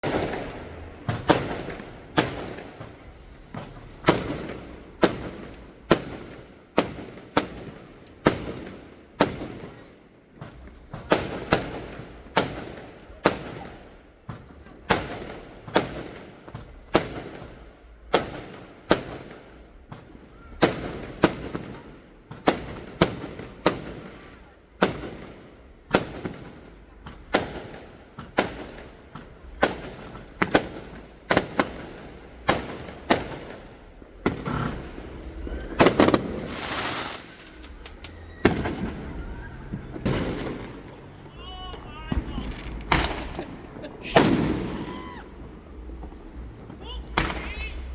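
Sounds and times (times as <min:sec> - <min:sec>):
fireworks exploding: 0:00.0 - 0:47.9.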